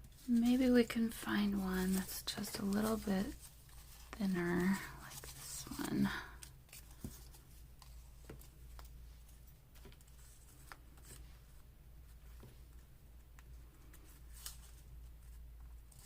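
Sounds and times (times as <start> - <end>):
paper rustling: 0.0 - 11.6
low steady hum: 0.0 - 16.0.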